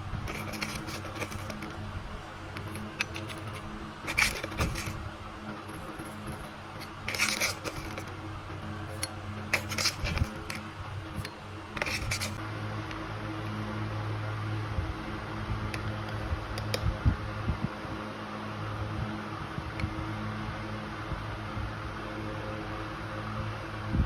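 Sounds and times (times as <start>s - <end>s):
utensils clicking and scraping: 0.0s - 12.4s
steady low hum: 0.0s - 24.0s.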